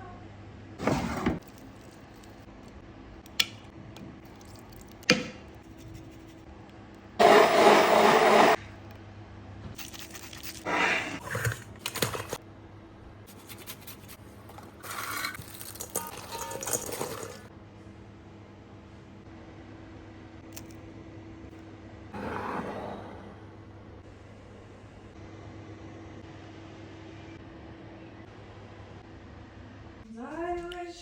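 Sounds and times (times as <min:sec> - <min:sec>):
food scraping and clatter: 0:10.0 - 0:12.4, 0:13.8 - 0:17.5.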